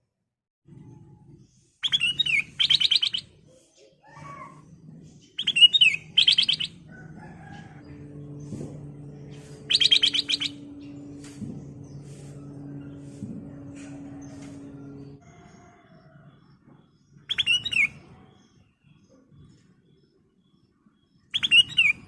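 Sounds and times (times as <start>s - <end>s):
bird whistling and trilling: 1.8s - 3.4s, 5.4s - 6.8s, 9.6s - 10.7s, 17.3s - 18.0s, 21.3s - 22.0s
low steady hum: 4.3s - 15.2s.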